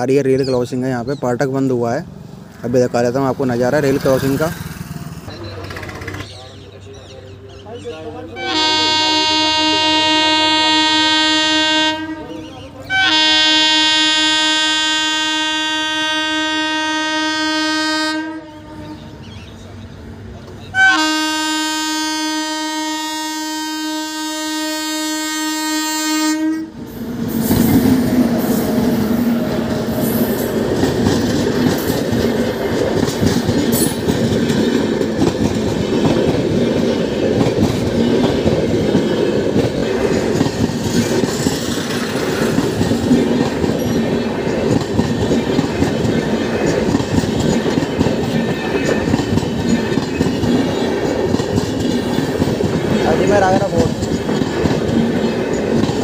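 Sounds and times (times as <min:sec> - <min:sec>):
train wheels clattering on rails: 0:03.7 - 0:08.0, 0:27.0 - 0:56.0
locomotive horn blast: 0:08.4 - 0:19.1, 0:20.7 - 0:26.9.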